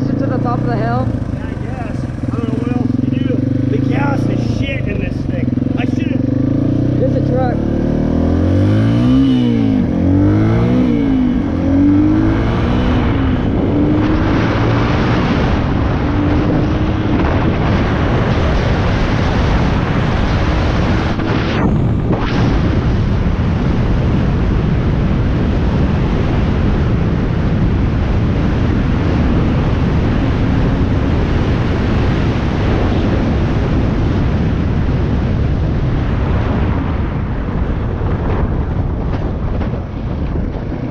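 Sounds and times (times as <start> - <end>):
dirt bike engine revving: 0.0 - 19.8
wind noise on microphone: 0.0 - 40.9.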